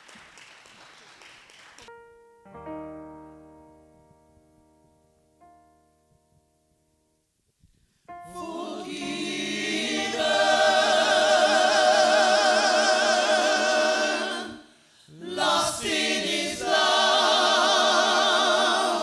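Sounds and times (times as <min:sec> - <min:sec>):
gospel choir singing held chord: 0:08.2 - 0:19.0.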